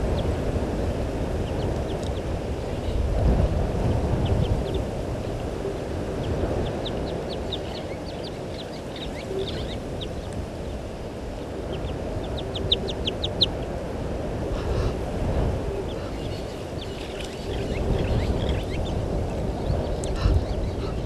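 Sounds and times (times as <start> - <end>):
birds chirping: 0.0 - 21.0
low rumble: 0.0 - 21.0.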